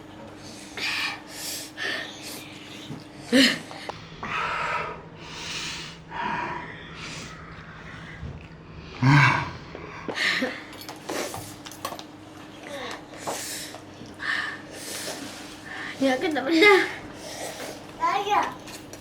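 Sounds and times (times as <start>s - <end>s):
children sniffing and huffing: 0.4s - 4.4s, 12.7s - 17.9s.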